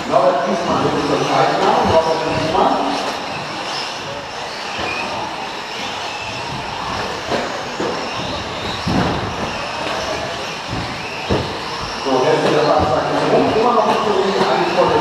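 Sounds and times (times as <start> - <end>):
electric motors whining: 0.0 - 15.0
sharp knocks: 6.3 - 11.8.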